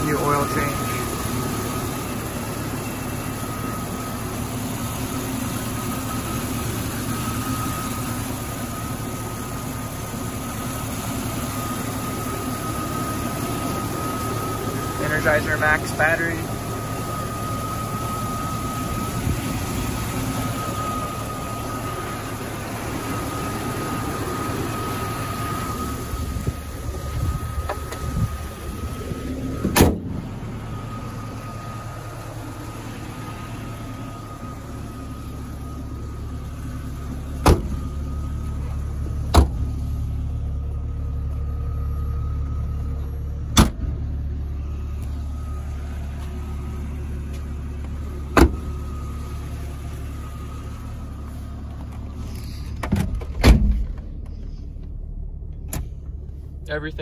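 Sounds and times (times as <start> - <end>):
thin whine: 0.0 - 43.4
car engine idling: 0.0 - 57.0
car hood slamming shut: 29.6 - 30.2, 37.4 - 37.8, 39.3 - 39.6, 43.6 - 44.0, 48.4 - 48.7, 52.8 - 54.0.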